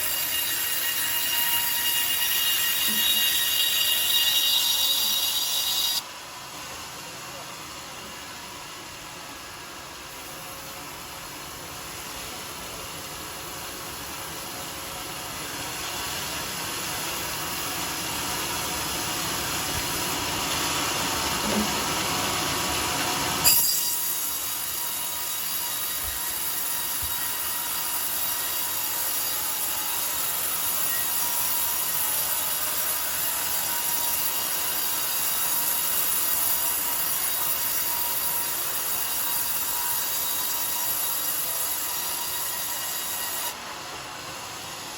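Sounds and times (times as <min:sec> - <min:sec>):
saw blade cutting log: 0:00.0 - 0:06.0, 0:23.4 - 0:43.6.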